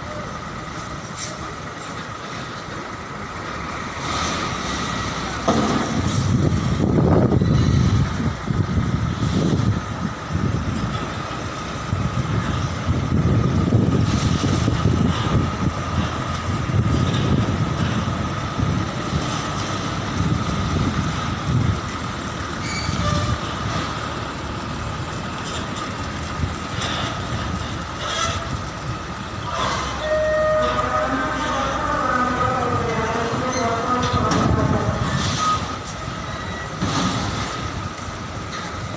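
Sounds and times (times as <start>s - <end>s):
truck diesel engines rumbling: 0.0s - 38.9s
pitched squeals: 22.6s - 23.5s, 29.4s - 31.7s.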